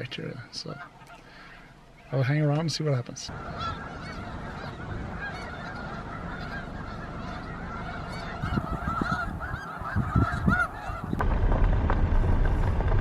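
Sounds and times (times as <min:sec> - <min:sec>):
geese honking: 0:03.3 - 0:11.2
steady low rumble: 0:03.3 - 0:13.0
wind buffeting microphone: 0:03.3 - 0:13.0.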